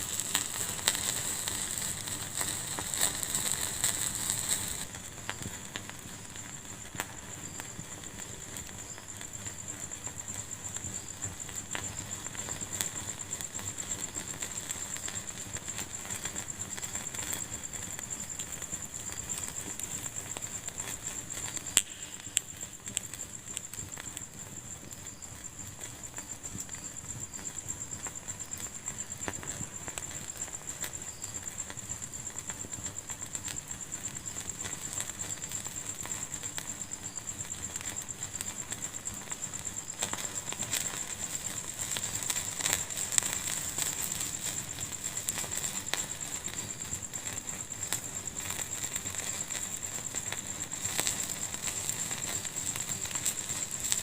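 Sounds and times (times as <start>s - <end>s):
hiss: 0.0s - 54.0s
wood fire crackling: 0.0s - 54.0s.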